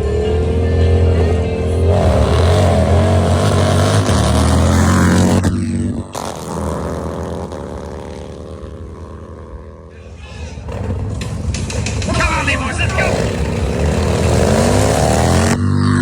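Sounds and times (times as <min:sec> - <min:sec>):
motorcycle engines at full throttle: 0:00.0 - 0:16.0.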